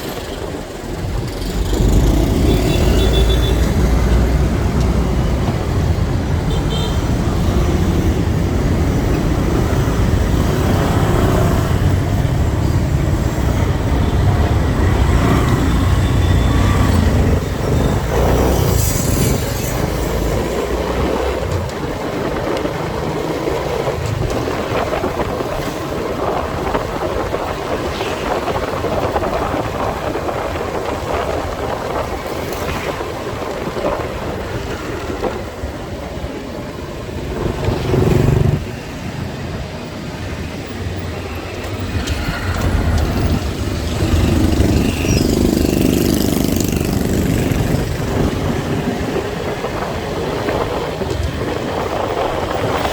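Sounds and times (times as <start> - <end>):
road and wind noise: 0.0 - 52.9
surrounding vehicle traffic: 0.0 - 52.9.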